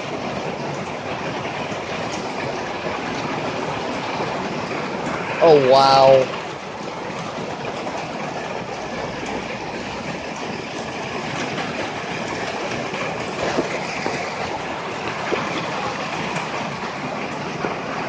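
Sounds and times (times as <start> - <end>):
heavy rain pouring: 0.0 - 18.0
sharp drip impacts: 6.5 - 17.0.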